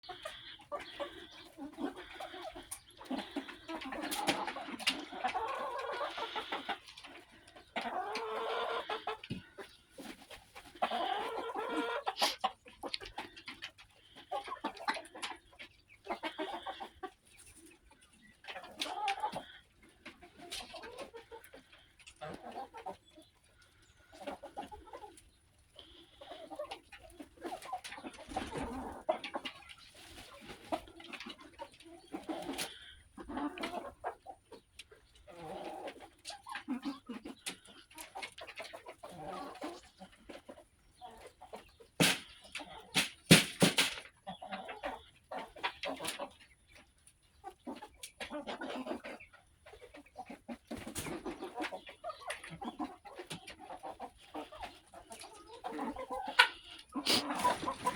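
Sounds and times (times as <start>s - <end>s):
chickens clucking: 0.0s - 57.9s.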